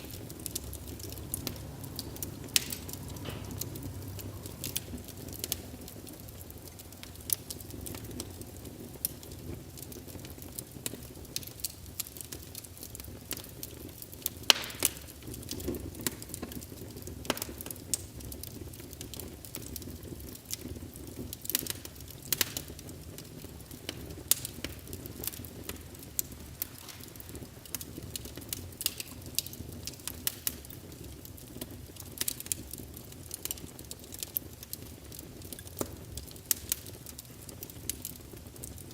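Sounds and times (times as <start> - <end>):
low steady rumble: 0.0 - 9.7
wood fire crackling and popping: 0.0 - 38.9.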